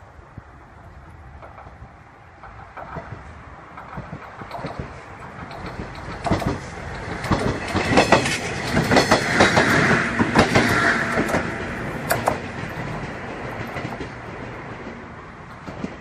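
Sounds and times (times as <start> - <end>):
train passing rushing rumble: 0.0 - 16.0
train wheels clattering over rail joints: 1.3 - 16.0.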